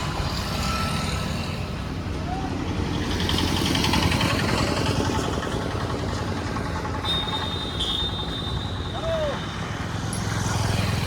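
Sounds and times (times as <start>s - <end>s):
truck engine idling: 2.4s - 9.9s.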